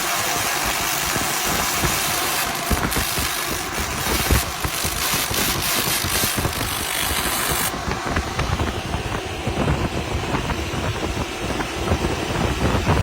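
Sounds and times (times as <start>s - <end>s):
loud hiss: 0.0s - 7.7s
laser cleaning machine rumble: 0.0s - 13.0s.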